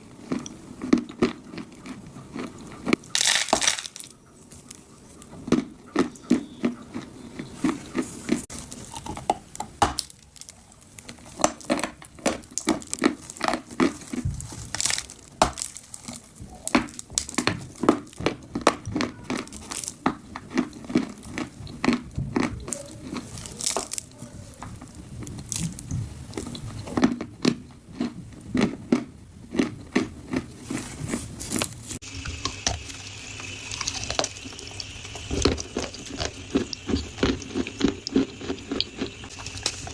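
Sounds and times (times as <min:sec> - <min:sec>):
dry clay crunching and cracking: 0:00.0 - 0:32.9, 0:33.7 - 0:39.9
steady hiss: 0:31.9 - 0:39.9.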